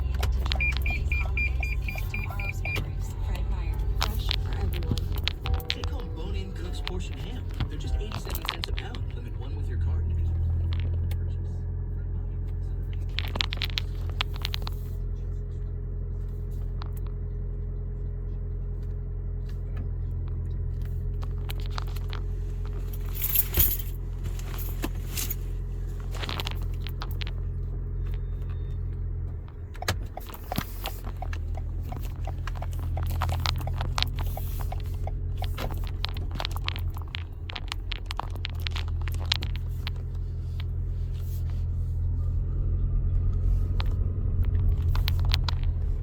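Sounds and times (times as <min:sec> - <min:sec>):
car cabin rumble: 0:00.0 - 0:46.0
light clicks and rattles: 0:16.3 - 0:42.1, 0:43.2 - 0:46.0.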